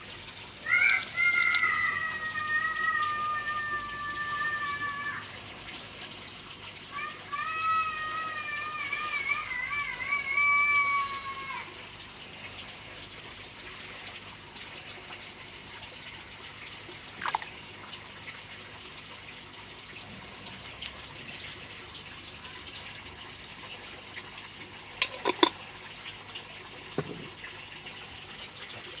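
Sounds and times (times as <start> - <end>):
pond water trickling: 0.0 - 29.0
water splashes: 16.7 - 18.5, 20.0 - 29.0.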